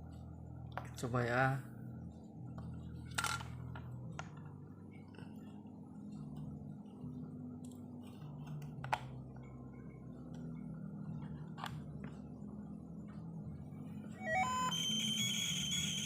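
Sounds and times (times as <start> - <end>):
television low hum: 0.0 - 16.0
high-pitched whine: 13.7 - 16.0
rising tones: 14.2 - 16.0.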